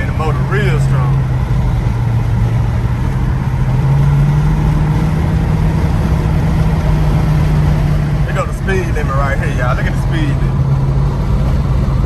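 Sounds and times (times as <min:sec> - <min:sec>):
car engine droning: 0:00.0 - 0:12.0
road noise: 0:00.0 - 0:12.0.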